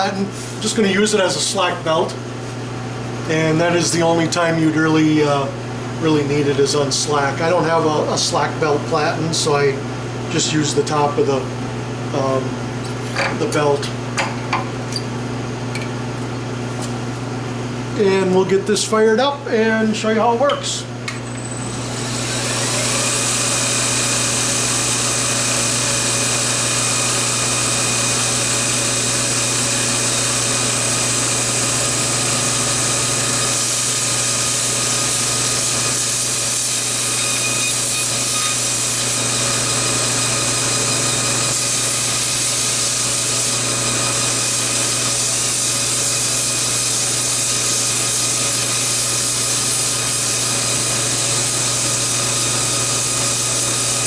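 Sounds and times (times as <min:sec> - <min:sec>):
belt grinder motor humming and whining: 0:21.1 - 0:54.0.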